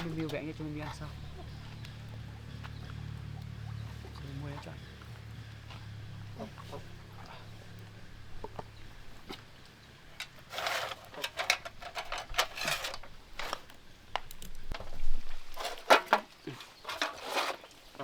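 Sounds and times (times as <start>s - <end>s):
dishes and utensils clattering: 10.2s - 13.6s, 15.6s - 17.7s.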